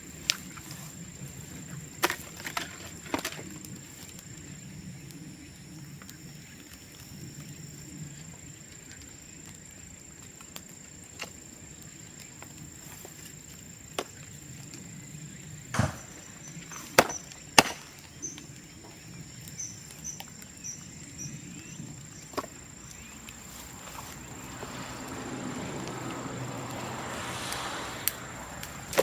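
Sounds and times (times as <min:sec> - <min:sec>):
low fire crackle: 0:00.0 - 0:29.0
bamboo popping and cracking: 0:01.9 - 0:04.2, 0:10.2 - 0:14.9, 0:15.6 - 0:20.5, 0:22.1 - 0:24.7, 0:28.0 - 0:29.0.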